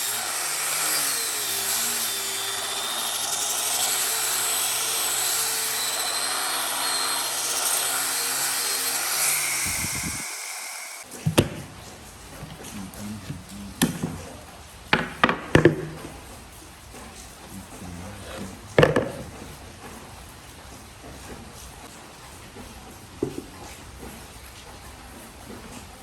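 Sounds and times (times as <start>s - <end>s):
power tool running on wood: 0.0s - 11.1s
sharp knocks of wood handling: 13.8s - 14.3s, 15.0s - 16.2s, 18.8s - 19.4s.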